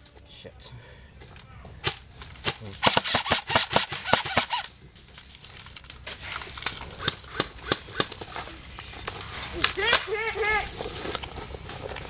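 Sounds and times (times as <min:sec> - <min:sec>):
airsoft guns firing: 0:01.8 - 0:04.7, 0:06.9 - 0:08.4.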